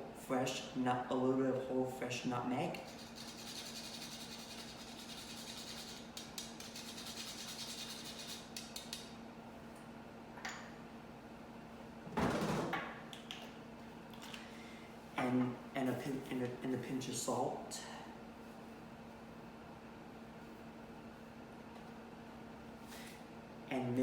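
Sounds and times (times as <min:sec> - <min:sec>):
steady low hum: 0:00.0 - 0:24.0
nutmeg grating: 0:02.8 - 0:09.0.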